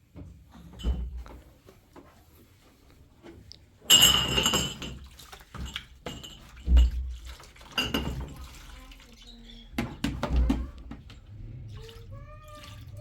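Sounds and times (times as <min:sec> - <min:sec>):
dishes and glassware clinking: 0:00.6 - 0:01.4, 0:03.8 - 0:08.5
ringing clatter of dishes: 0:00.7 - 0:01.2, 0:03.9 - 0:05.0.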